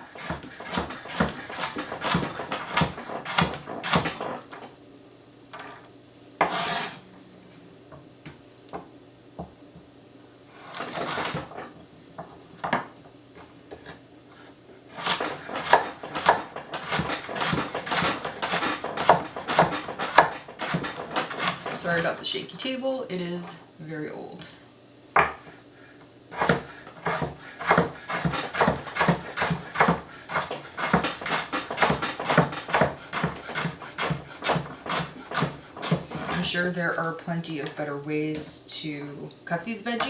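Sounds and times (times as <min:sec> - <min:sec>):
scraping on cutting board: 0:00.0 - 0:04.4, 0:06.4 - 0:07.0, 0:10.5 - 0:11.7, 0:13.7 - 0:22.2, 0:26.3 - 0:36.7
knife chopping on cutting board: 0:00.2 - 0:04.4, 0:06.4 - 0:07.0, 0:15.0 - 0:21.8, 0:25.2 - 0:25.6, 0:26.3 - 0:36.4
table knocking: 0:25.2 - 0:25.4.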